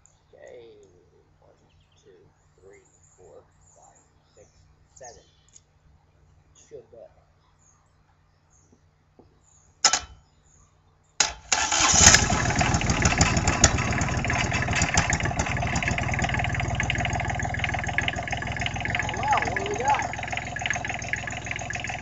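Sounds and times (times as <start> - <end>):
diesel engine starting and running: 11.2 - 22.0.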